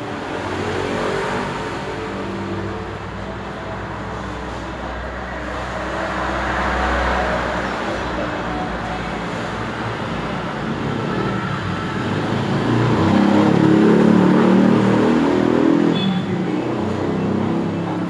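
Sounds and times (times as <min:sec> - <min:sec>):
road noise: 0:00.0 - 0:18.0
vehicle engine passing by: 0:10.0 - 0:18.0.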